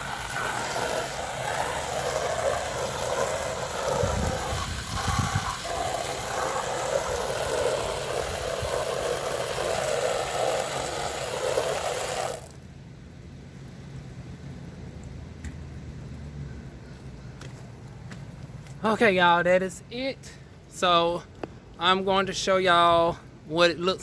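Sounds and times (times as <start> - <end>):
water spraying against siding: 0.0 - 12.8.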